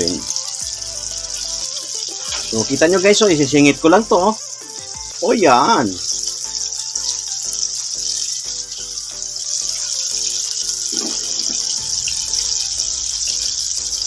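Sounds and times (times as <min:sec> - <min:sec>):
background music: 0:00.0 - 0:14.0
chicken deep-frying in oil: 0:00.0 - 0:14.0.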